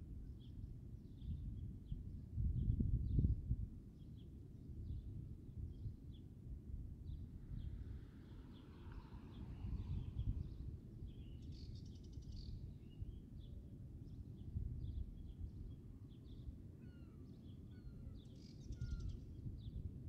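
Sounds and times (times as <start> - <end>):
low rumble: 7.0 - 11.2
small birds chirping: 7.0 - 19.8.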